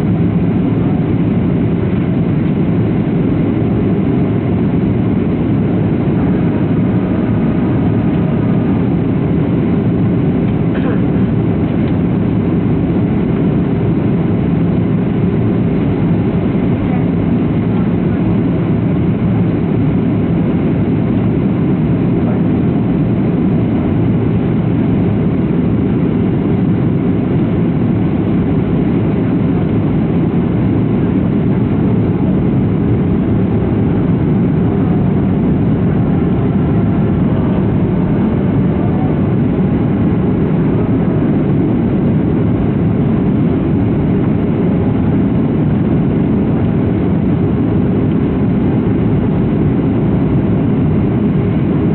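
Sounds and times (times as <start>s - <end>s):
jet airliner cabin roar: 0.0s - 51.9s.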